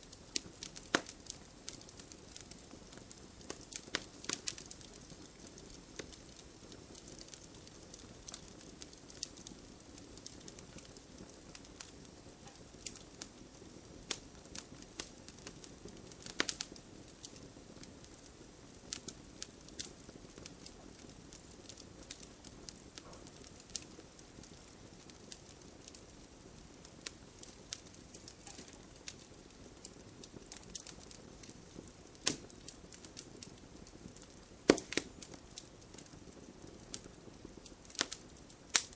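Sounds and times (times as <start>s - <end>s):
soft steady hiss: 0.0s - 38.9s
wood fire crackling and popping: 0.0s - 38.9s.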